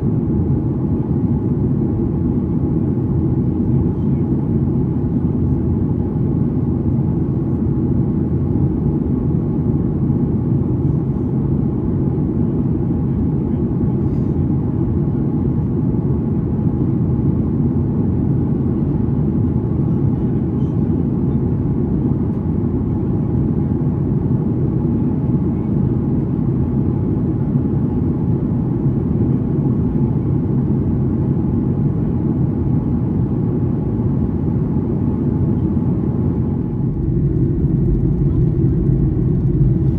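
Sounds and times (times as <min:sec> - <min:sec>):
aircraft engine rumble: 0:00.0 - 0:39.9
faint steady hum: 0:34.7 - 0:39.9.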